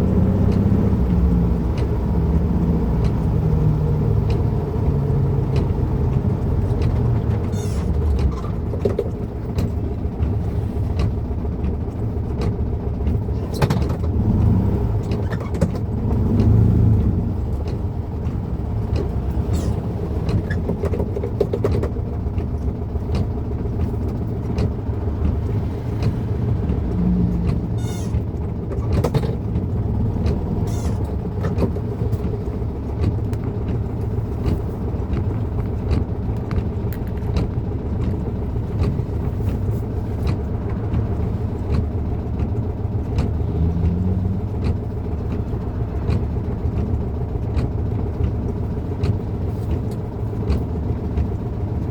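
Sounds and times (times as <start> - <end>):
car engine running in cabin: 0.0 - 51.9.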